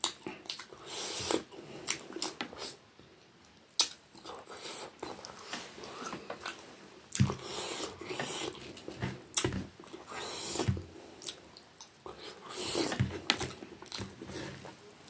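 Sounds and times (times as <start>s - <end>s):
chewing and wet mouth smacks: 3.4s - 4.4s.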